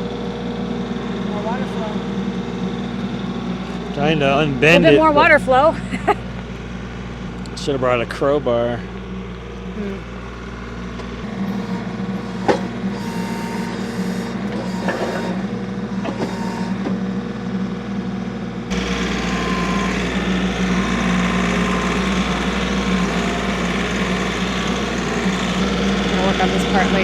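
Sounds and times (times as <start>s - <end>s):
digger engine running: 0.0s - 27.0s.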